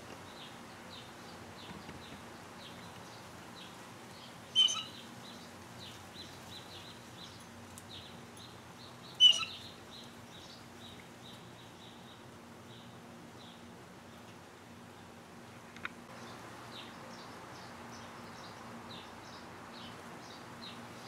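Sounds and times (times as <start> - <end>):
loud bird calls: 4.6 - 5.1, 9.1 - 9.7
small high bird chirps: 4.6 - 5.1, 9.1 - 9.8.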